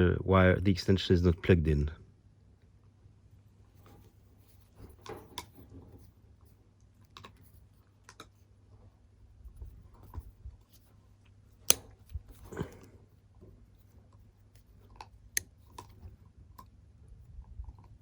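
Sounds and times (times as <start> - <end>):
pliers cutting cable: 11.7 - 12.8.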